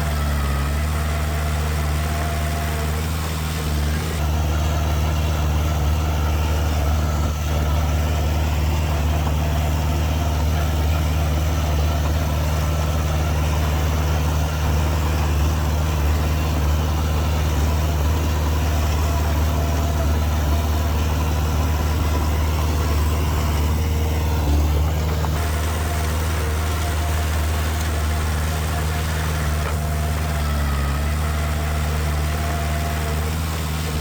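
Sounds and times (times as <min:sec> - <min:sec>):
diesel engine droning: 0:00.0 - 0:34.0.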